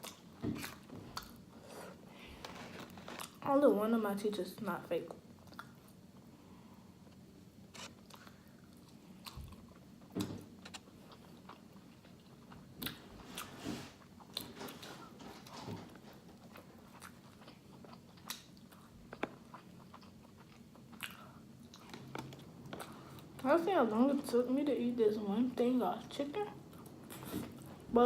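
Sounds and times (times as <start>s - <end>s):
person chewing crunchy food: 0.0s - 1.7s, 7.8s - 15.5s, 16.1s - 23.4s, 26.7s - 27.9s.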